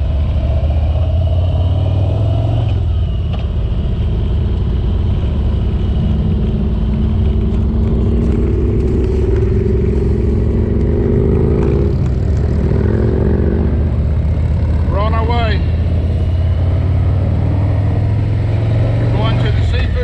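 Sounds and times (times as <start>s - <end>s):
motorcycle engine rumbling: 0.0s - 20.0s.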